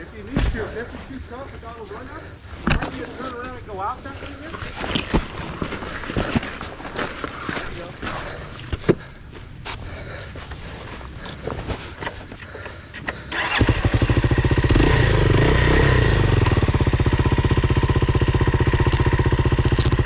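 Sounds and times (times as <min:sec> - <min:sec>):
dirt bike engine starting and idling: 0:12.9 - 0:20.0.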